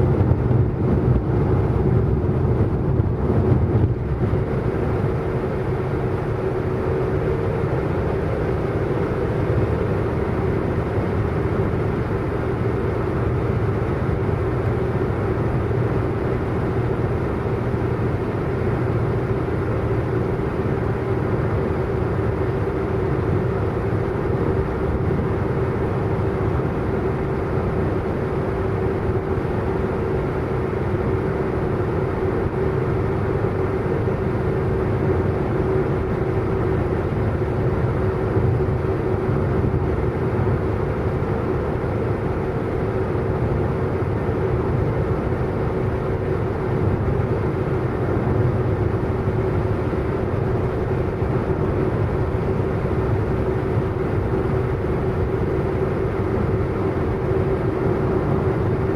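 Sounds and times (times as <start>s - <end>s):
car engine drone: 0.0s - 58.9s
road and tyre noise: 0.0s - 58.9s.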